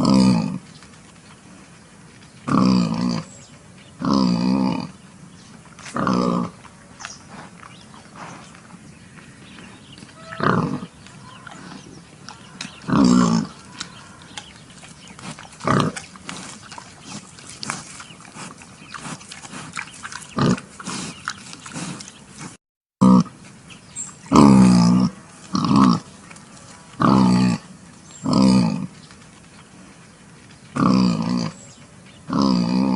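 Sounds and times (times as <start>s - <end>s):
pigs calling: 9.1s - 23.4s, 24.2s - 29.0s, 32.2s - 32.9s.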